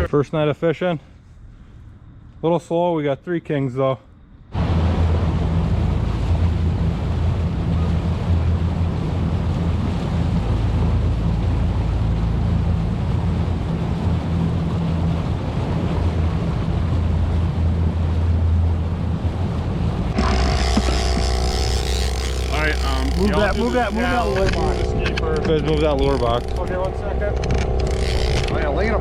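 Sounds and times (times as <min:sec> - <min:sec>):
boat motor droning: 0:04.5 - 0:29.0
wind noise on microphone: 0:04.5 - 0:29.0.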